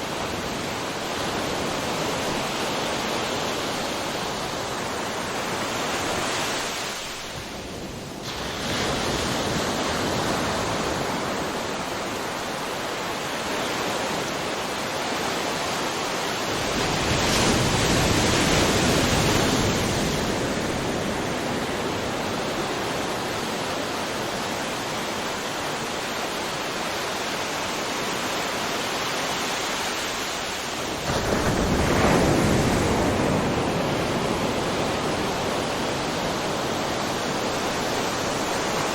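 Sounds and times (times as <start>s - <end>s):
waves breaking: 0.0s - 38.9s
big wave crashing: 29.4s - 38.9s.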